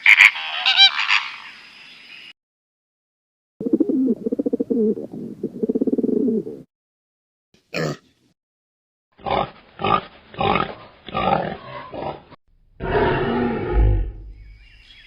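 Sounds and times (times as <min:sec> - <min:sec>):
animal grunting calls: 0:09.2 - 0:14.4
animal rough roar: 0:09.2 - 0:14.4.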